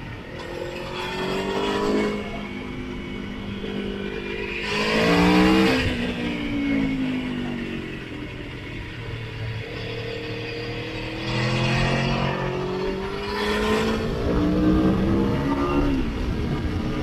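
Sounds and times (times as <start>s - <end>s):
motorcycle engine accelerating: 0.4s - 17.0s
wind rush: 13.6s - 17.0s.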